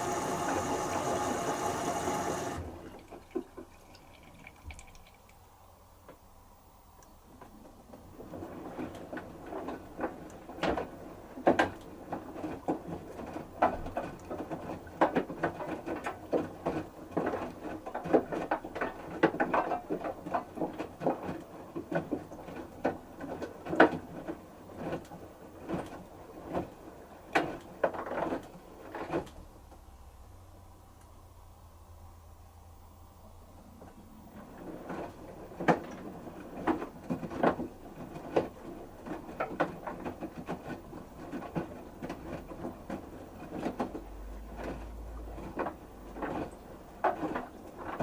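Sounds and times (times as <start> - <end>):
laundry tumbling in washing machine: 0.0 - 5.2, 7.6 - 29.9, 33.8 - 48.0
water swishing: 0.0 - 5.4.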